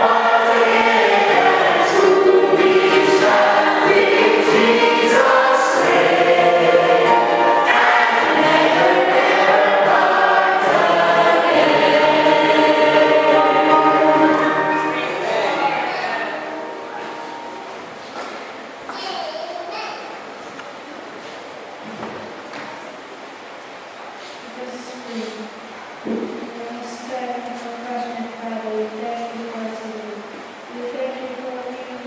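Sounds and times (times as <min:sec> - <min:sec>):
choir singing: 0:00.0 - 0:17.8.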